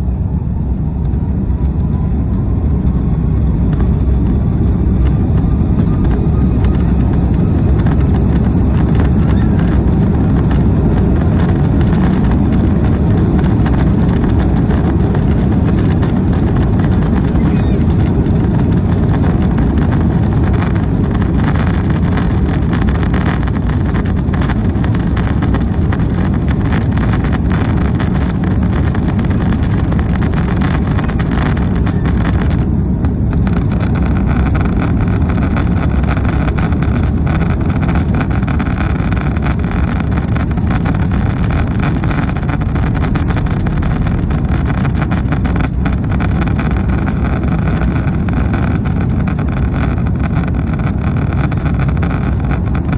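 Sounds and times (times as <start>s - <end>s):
aircraft engine rumble in cabin: 0.0s - 52.9s.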